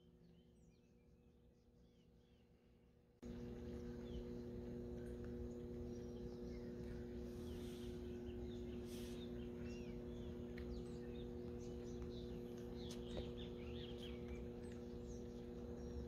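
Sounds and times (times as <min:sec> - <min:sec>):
faint low hum: 0:00.0 - 0:16.0
small birds chirping: 0:03.2 - 0:16.0.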